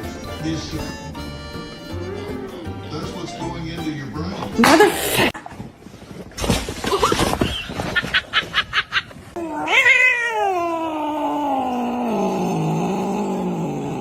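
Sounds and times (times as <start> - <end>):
cat yowling: 9.4 - 14.0.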